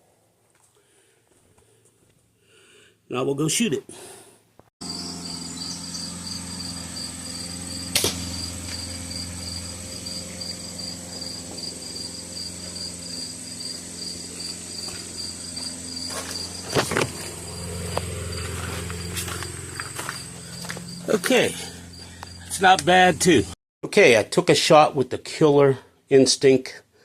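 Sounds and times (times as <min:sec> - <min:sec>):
crickets chirping: 0:04.8 - 0:23.6
crossbow click: 0:07.9 - 0:08.2
crossbow shot snap: 0:07.9 - 0:08.8.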